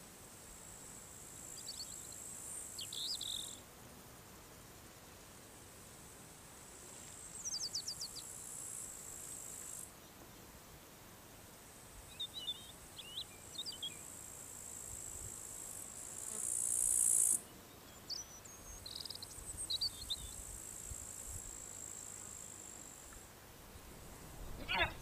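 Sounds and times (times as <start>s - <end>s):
hissy insect buzz: 0.0s - 25.0s
crickets chirring: 12.1s - 17.4s, 23.8s - 25.0s.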